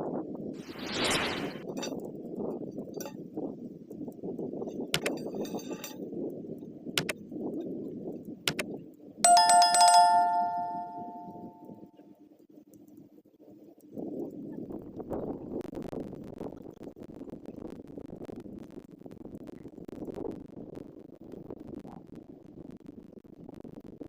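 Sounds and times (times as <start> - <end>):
sharp clicks: 5.0 - 5.2, 7.0 - 7.2, 8.5 - 8.7.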